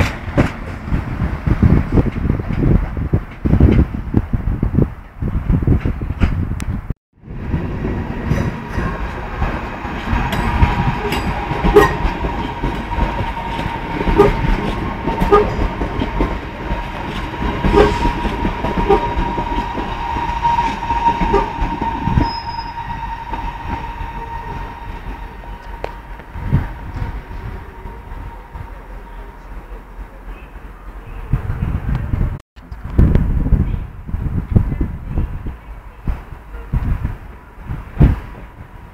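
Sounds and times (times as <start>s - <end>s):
train wheels clicking over rail joints: 0.0s - 4.0s
train high whine and rumble: 0.0s - 38.9s.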